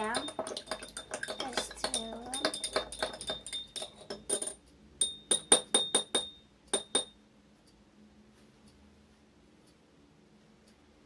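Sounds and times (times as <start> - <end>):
utensil clinking against bowl: 0.0 - 7.2.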